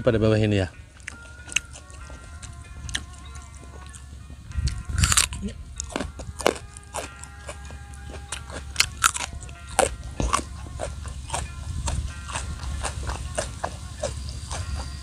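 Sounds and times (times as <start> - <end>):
crisp crunching bites: 5.0 - 7.2, 8.4 - 12.4.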